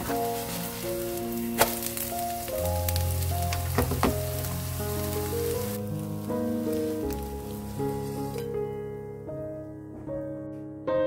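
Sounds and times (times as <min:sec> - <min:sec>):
pancake sizzling in oil: 0:00.0 - 0:08.5
background music with held notes: 0:00.0 - 0:11.0.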